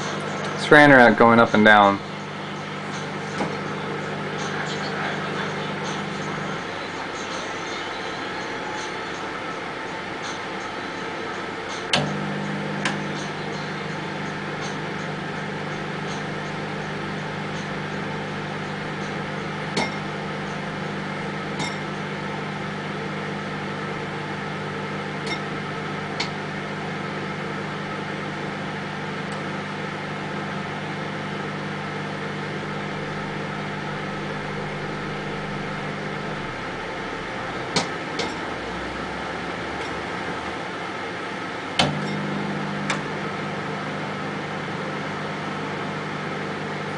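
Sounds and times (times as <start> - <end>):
microwave oven humming: 0.0 - 46.9
popcorn popping: 11.9 - 35.3, 36.0 - 38.6.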